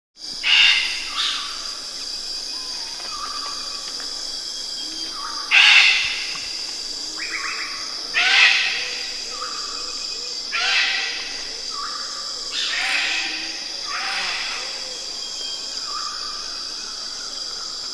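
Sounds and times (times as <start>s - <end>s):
bird giving harsh calls: 0.4s - 1.6s, 5.5s - 6.3s.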